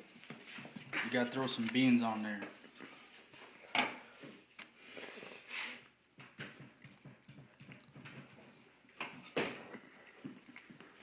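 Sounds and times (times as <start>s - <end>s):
scraping hiss: 4.8s - 5.9s.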